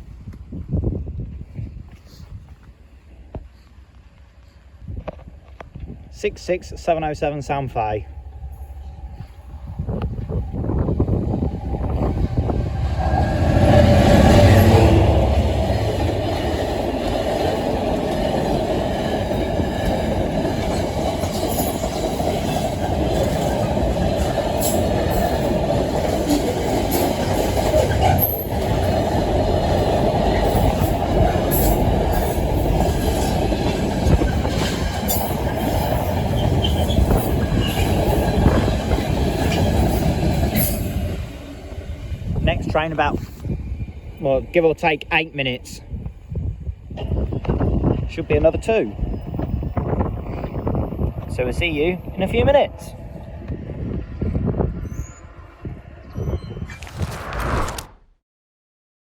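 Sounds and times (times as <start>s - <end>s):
diesel locomotive engine: 0.0s - 56.7s
freight wagons rumbling: 3.2s - 56.3s
wheels clicking over rail joints: 9.9s - 41.1s.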